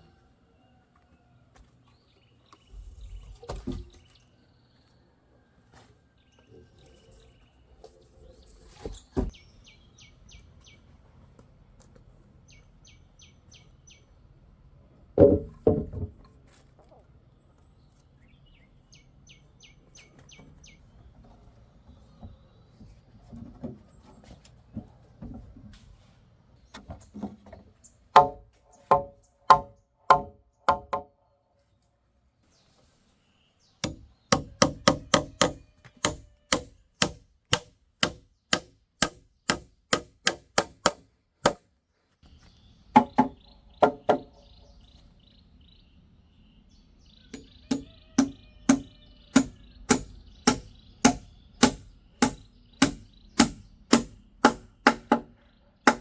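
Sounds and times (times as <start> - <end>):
hand tool striking wood: 28.2 - 31.1, 33.8 - 41.6, 43.0 - 44.3, 47.3 - 56.0.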